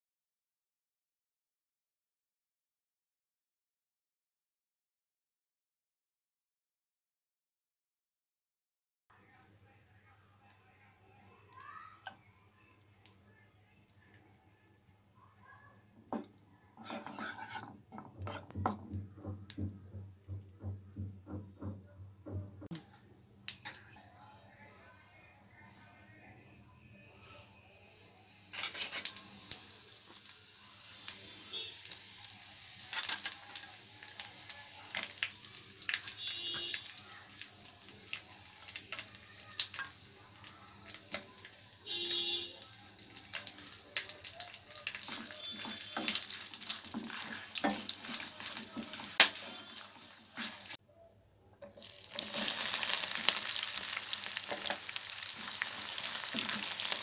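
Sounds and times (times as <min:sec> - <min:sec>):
spices sizzling and popping in fat: 0:16.2 - 0:19.4, 0:27.2 - 0:50.8, 0:51.6 - 0:57.0
onions sizzling: 0:16.9 - 0:17.6, 0:27.1 - 0:50.8, 0:51.7 - 0:57.0.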